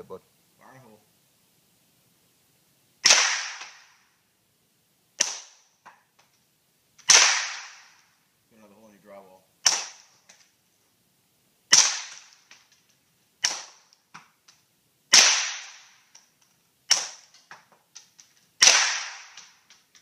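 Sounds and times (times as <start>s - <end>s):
suppressed pistol shots: 3.0s - 4.0s, 5.2s - 5.6s, 7.0s - 8.0s, 9.6s - 10.1s, 11.7s - 12.4s, 13.4s - 13.8s, 15.1s - 16.0s, 16.9s - 17.4s, 18.6s - 19.7s.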